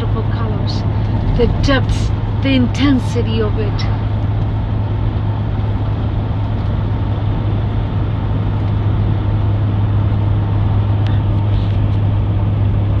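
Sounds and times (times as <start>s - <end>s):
moving vehicle rumble: 0.0s - 13.0s.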